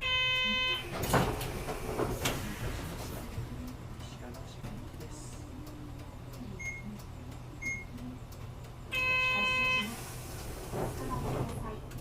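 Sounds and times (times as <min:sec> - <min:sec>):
door warning buzzer: 0:00.0 - 0:01.0, 0:08.9 - 0:09.9
bus engine idling: 0:00.0 - 0:12.0.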